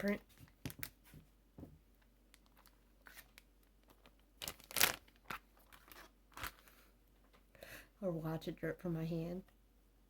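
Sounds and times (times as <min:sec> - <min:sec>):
slime squelching and crackling: 0:02.4 - 0:06.6.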